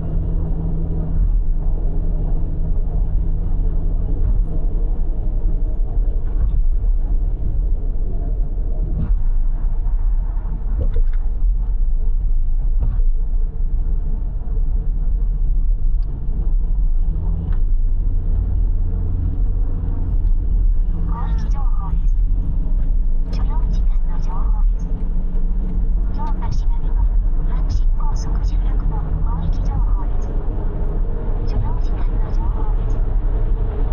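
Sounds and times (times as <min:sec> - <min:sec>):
car road and engine rumble: 0:00.0 - 0:33.9.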